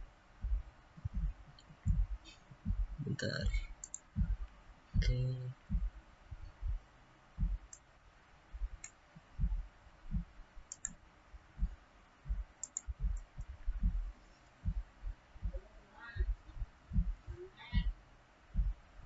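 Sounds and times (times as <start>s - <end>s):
computer mouse clicking: 3.7s - 4.1s, 10.7s - 11.0s, 12.6s - 13.3s.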